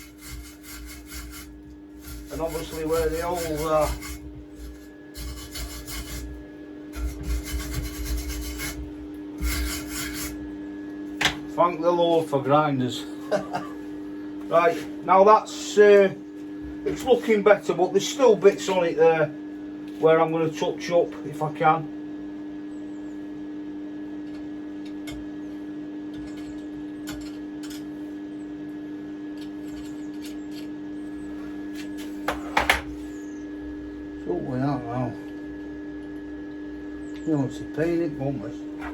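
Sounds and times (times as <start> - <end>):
angle grinder scraping metal: 0.0 - 10.5
steady electrical hum: 0.0 - 38.9.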